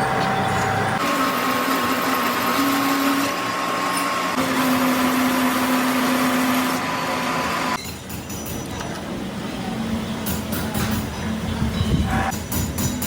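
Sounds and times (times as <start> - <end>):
workshop machine hissing: 0.0 - 7.8.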